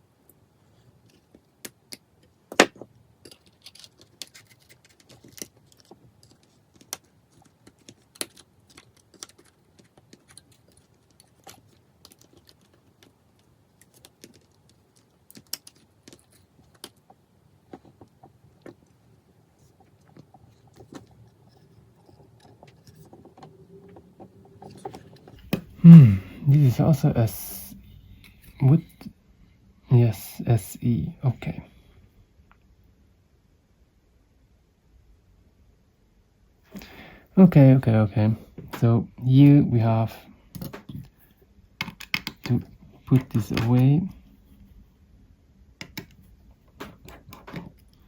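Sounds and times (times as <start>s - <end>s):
small tools clicking and tapping: 1.0s - 19.0s, 45.8s - 48.0s.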